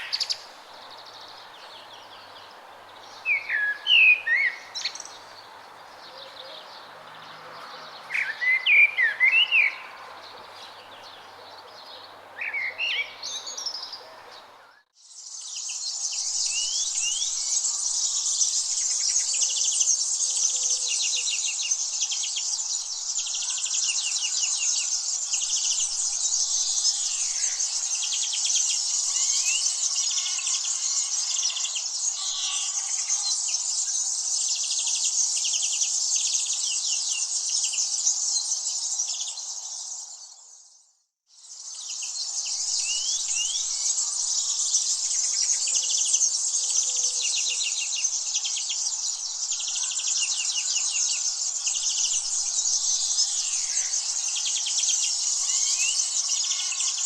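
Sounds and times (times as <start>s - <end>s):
bird chirps: 6.1s - 57.0s
high-pitched insect chorus: 15.0s - 57.0s.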